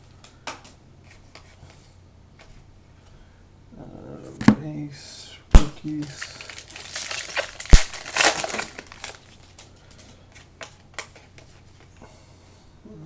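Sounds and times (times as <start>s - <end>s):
sharp wrapper snap: 5.6s - 9.3s
foil wrappers crinkling: 5.9s - 11.8s.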